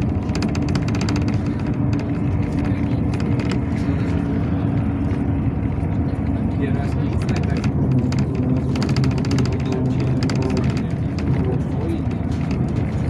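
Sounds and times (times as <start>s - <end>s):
clicking rattles: 0.0s - 4.1s, 7.1s - 13.0s
bus engine and road rumble: 0.0s - 13.0s.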